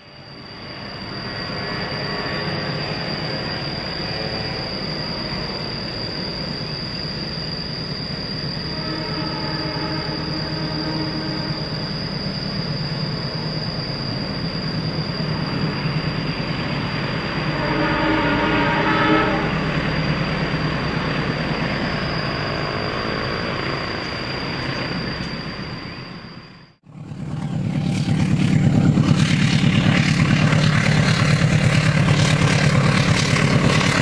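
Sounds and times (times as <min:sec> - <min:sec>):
diesel locomotive rumbling: 0:00.0 - 0:34.0
locomotive horn: 0:08.7 - 0:11.8, 0:17.5 - 0:19.7.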